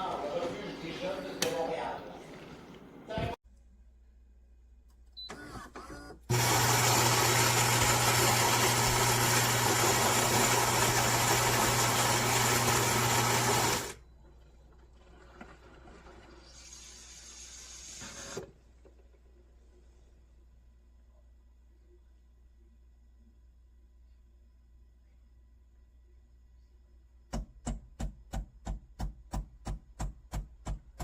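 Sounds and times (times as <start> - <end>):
coffee grinder grinding beans: 6.3 - 14.0.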